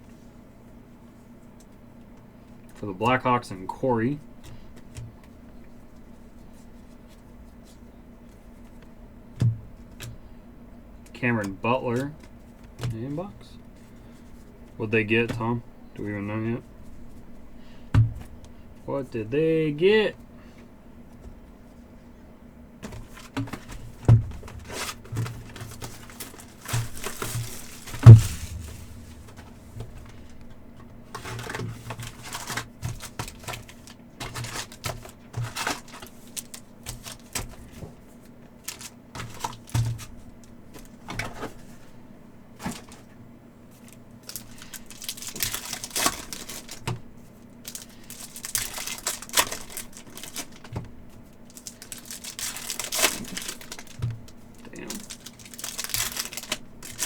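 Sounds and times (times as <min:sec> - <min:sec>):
wrapper crinkling: 0:23.0 - 0:30.4, 0:43.8 - 0:46.9, 0:47.6 - 0:57.0
loud thump: 0:28.0 - 0:30.0.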